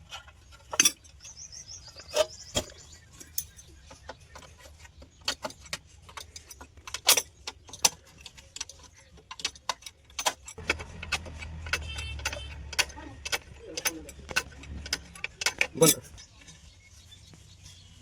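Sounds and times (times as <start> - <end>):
metallic clinks of steel: 11.6 - 16.2.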